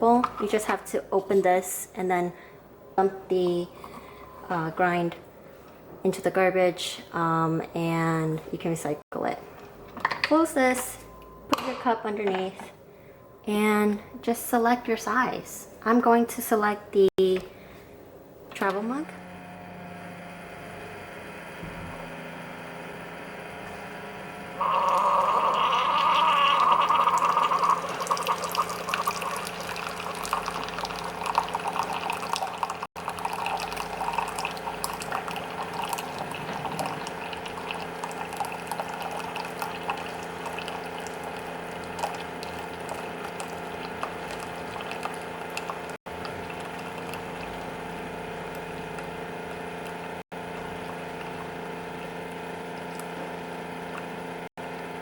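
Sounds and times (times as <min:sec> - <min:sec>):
coffee machine hum: 0:19.0 - 0:55.0
coffee pouring and dripping: 0:24.6 - 0:47.8.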